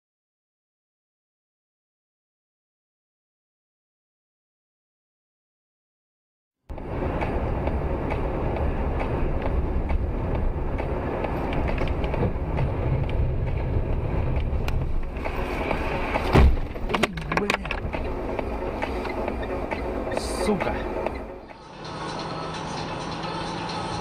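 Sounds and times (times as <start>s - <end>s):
car road and engine rumble: 6.7s - 24.0s
car collision bang: 16.2s - 16.8s.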